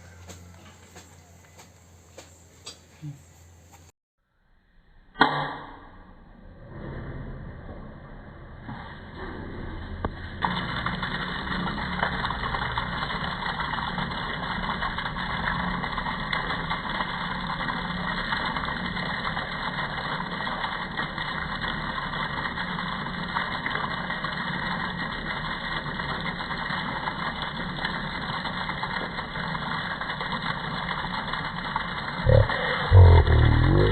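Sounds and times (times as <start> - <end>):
electric pump motor humming: 0.0 - 2.6, 10.0 - 33.9.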